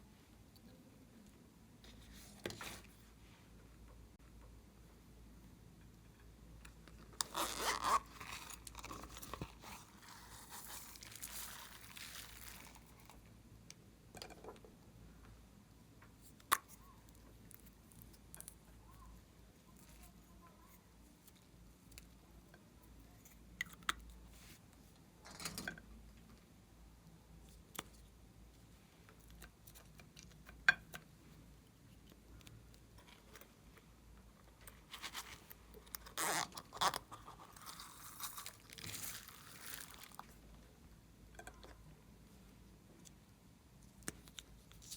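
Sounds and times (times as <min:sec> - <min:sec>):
tearing crinkling noise: 0:07.2 - 0:13.2, 0:34.8 - 0:40.4.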